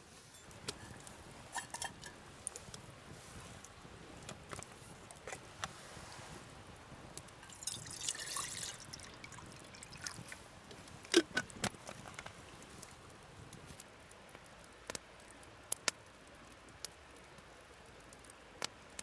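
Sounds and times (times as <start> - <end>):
liquid pouring: 7.4 - 10.5.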